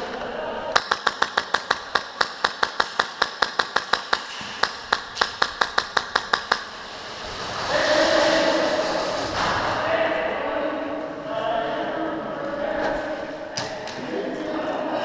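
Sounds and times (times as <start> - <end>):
airsoft gun firing rapidly: 0.8 - 6.8.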